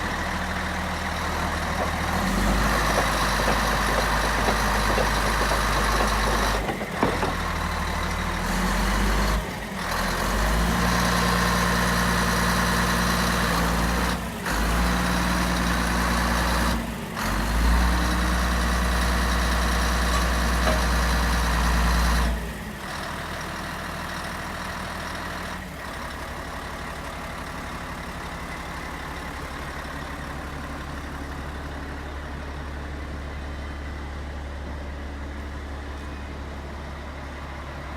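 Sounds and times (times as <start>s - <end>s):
bulldozer diesel engine running: 0.0s - 37.9s.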